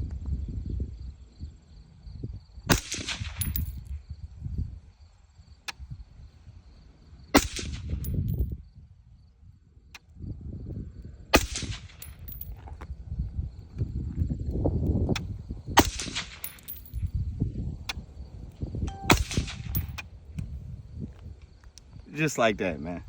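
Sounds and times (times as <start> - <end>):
suppressed gunshots: 15.8 - 16.8, 19.0 - 20.0.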